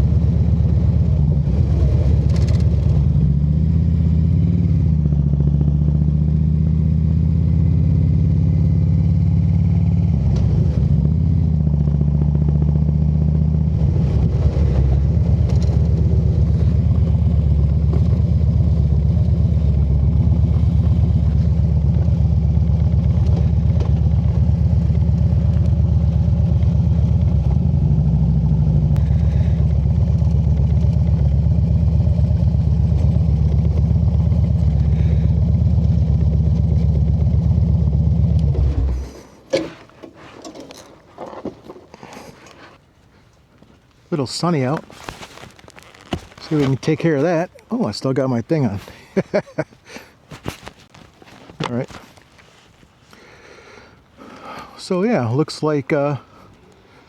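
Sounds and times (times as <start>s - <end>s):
motorcycle engine running: 0.0s - 41.8s, 44.7s - 47.8s.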